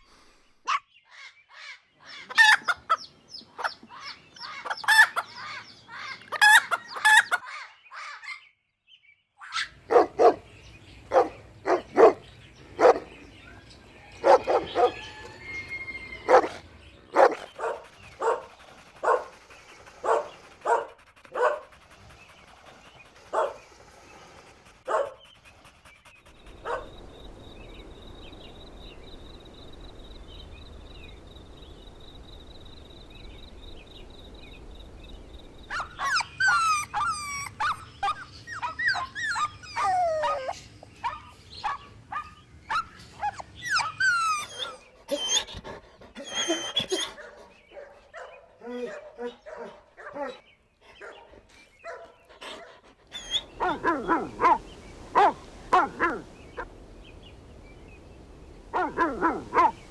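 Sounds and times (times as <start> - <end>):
chicken calling: 2.2 - 3.0, 3.6 - 8.2, 14.2 - 17.3
dog barking: 9.4 - 10.5, 11.1 - 12.2, 12.8 - 13.1, 14.2 - 15.4, 16.2 - 19.4, 20.0 - 21.8, 23.3 - 23.6, 24.9 - 25.2, 26.6 - 27.0, 35.7 - 45.5, 46.2 - 50.4, 51.0 - 56.7, 58.7 - 59.9
background hum: 9.7 - 59.9.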